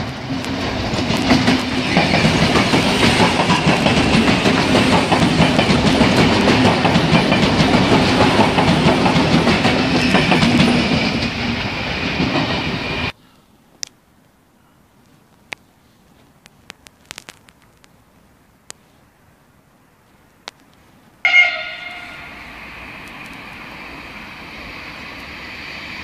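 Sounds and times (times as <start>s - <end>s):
wheels clacking over rail joints: 0.0s - 13.1s
electric train rushing past: 0.0s - 13.2s, 21.2s - 26.0s.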